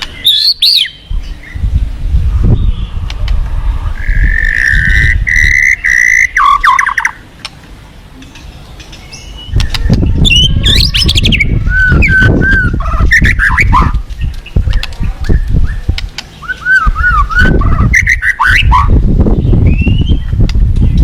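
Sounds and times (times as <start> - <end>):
bird singing whistles and chirps: 0.1 - 1.7, 4.0 - 7.2, 9.0 - 21.0
loud low rushing noise: 1.1 - 6.0.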